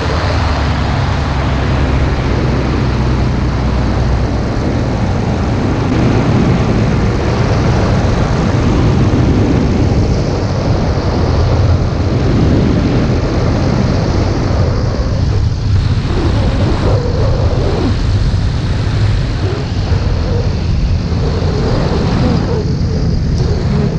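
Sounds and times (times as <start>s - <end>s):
rush of air: 0.0s - 23.9s
ultralight aircraft engine: 0.0s - 23.9s.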